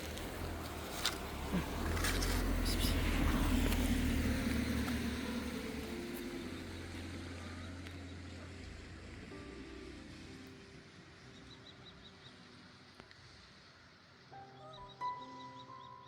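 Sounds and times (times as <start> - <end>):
vehicle passing by: 0.0 - 11.4.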